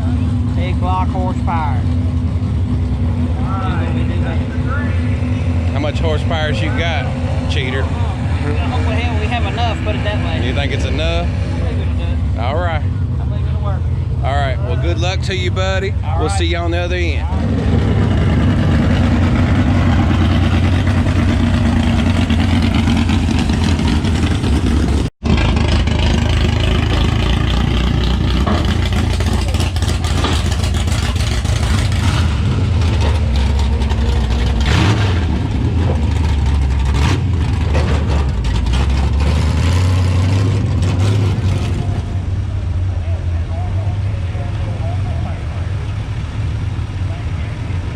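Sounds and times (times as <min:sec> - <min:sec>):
truck engine at high revs: 0:00.0 - 0:47.9.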